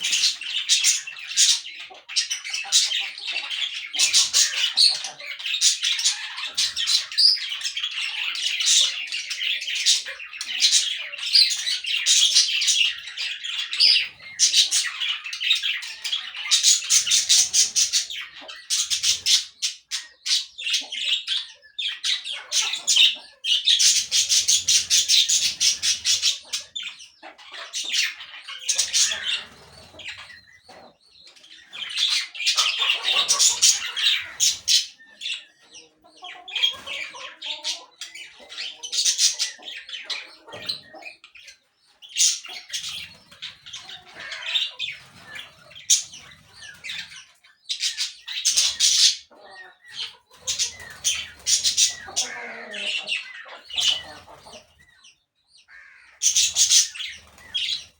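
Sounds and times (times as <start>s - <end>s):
parakeets chattering and squawking: 0.0s - 57.9s.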